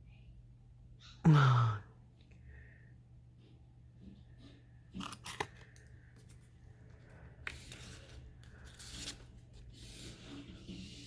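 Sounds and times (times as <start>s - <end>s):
paper rustling: 6.2s - 11.0s.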